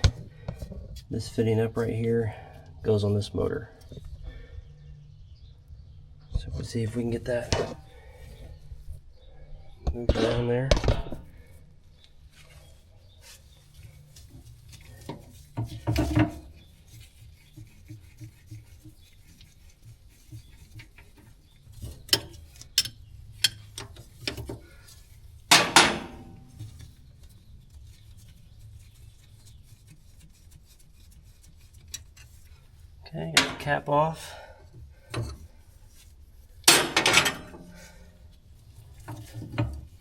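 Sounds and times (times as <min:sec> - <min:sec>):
hose rubbing and metallic clinks: 0:12.3 - 0:40.0.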